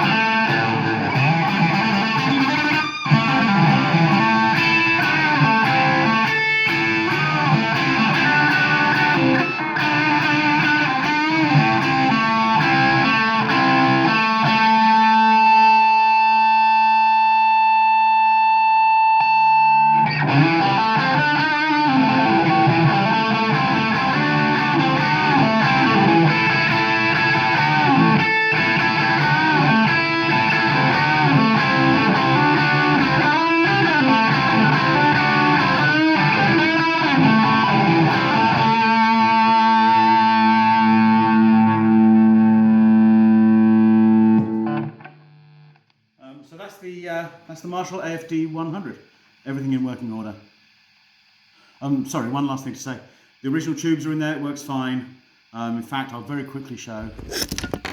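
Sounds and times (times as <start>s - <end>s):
overdriven electric guitar: 0.0s - 46.0s.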